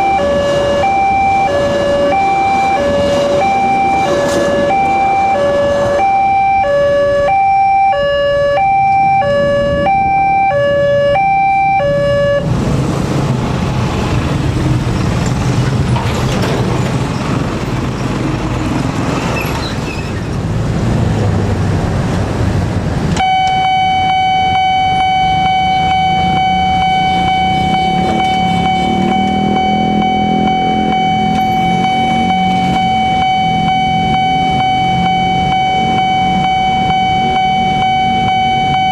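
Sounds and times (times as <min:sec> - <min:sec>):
loud rumbling noise: 0:00.0 - 0:06.0, 0:09.2 - 0:38.9
steady warning tone: 0:00.0 - 0:12.5, 0:23.2 - 0:38.9
two-tone electronic crossing alarm: 0:00.0 - 0:12.5, 0:23.2 - 0:38.9.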